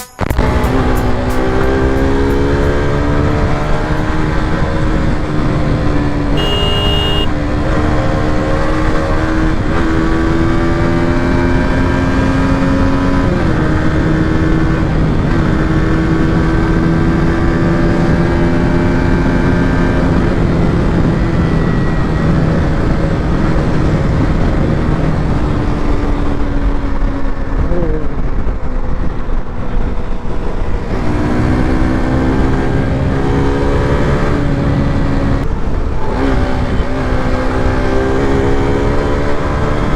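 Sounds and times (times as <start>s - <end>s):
heavy rushing noise: 0.2s - 17.3s
motorcycle engine running: 0.3s - 39.9s
brief high tone: 6.4s - 7.3s.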